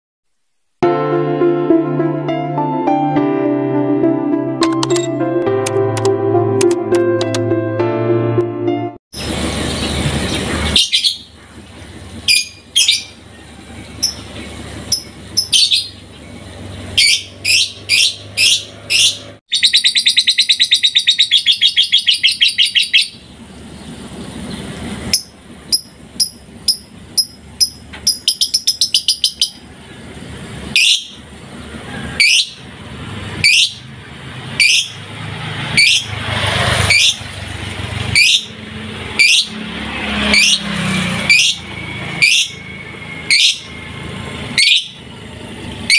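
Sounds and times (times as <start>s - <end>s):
songbird singing: 9.2s - 32.7s, 33.3s - 33.9s, 34.5s - 35.0s, 35.7s - 36.2s, 38.0s - 45.9s.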